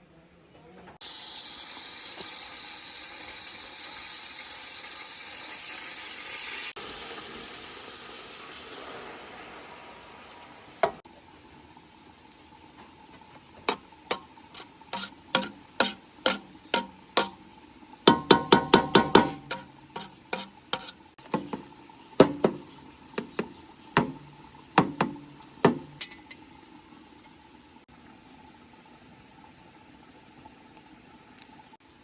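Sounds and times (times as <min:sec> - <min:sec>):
sharp uneven knocks: 0:23.2 - 0:24.2.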